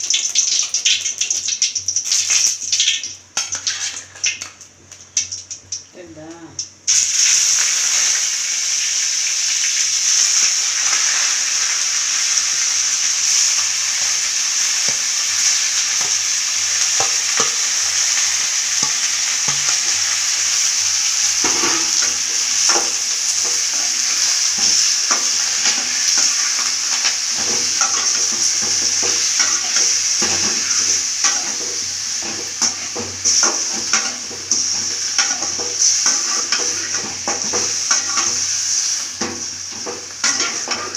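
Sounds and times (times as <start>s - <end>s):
food sizzling in hot oil: 0.0s - 40.9s
spoon scraping and knocking pan: 14.8s - 20.3s, 21.3s - 38.5s, 39.2s - 40.9s.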